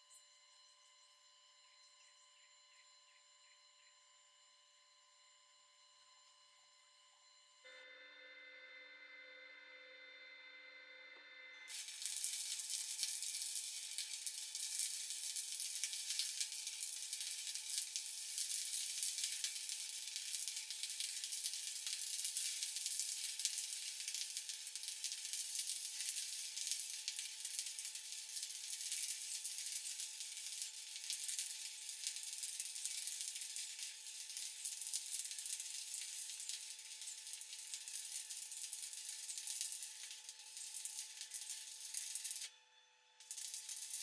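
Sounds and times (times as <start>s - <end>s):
welding arc crackling: 11.7s - 42.5s, 43.2s - 44.0s.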